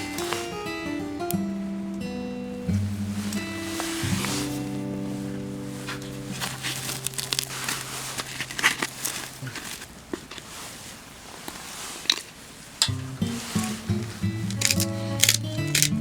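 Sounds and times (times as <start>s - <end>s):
background music: 0.0s - 7.7s, 13.7s - 16.0s
light crackles and crinkles: 0.0s - 16.0s.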